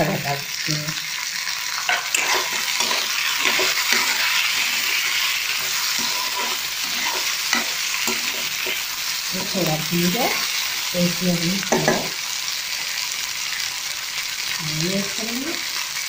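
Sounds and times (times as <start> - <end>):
peas sizzling in oil: 0.0 - 16.0
spatula scraping pan: 1.7 - 10.7.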